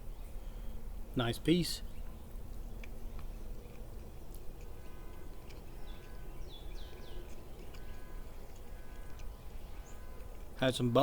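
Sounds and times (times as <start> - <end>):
small bird chirping: 1.6 - 10.7.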